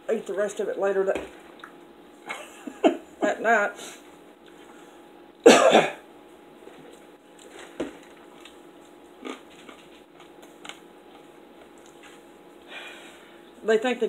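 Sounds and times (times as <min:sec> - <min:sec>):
quiet chewing: 0:01.4 - 0:01.9, 0:04.0 - 0:04.9, 0:06.6 - 0:12.7
crunchy bite: 0:09.2 - 0:10.8.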